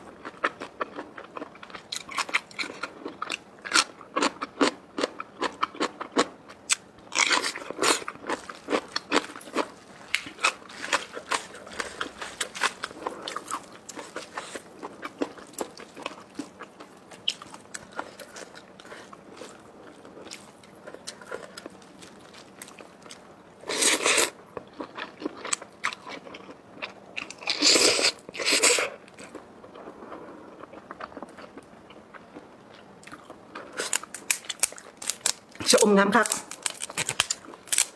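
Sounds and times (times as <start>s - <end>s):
person chewing food: 0.0s - 35.6s, 36.2s - 37.9s.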